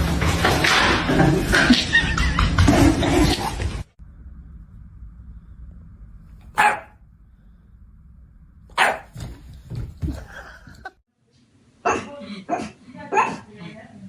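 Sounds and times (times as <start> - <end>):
low background rumble: 4.0 - 8.8
dog barking: 6.5 - 7.0, 8.8 - 9.2, 11.8 - 13.5.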